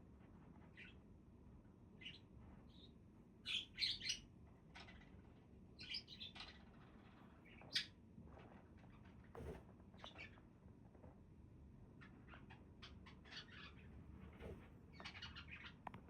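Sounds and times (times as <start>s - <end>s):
budgerigars chirping: 3.5s - 4.2s, 15.0s - 15.8s.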